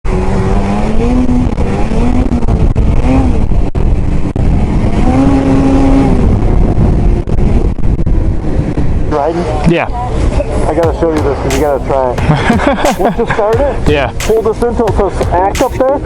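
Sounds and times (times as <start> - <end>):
two-stroke engine revving: 0.1 - 7.7.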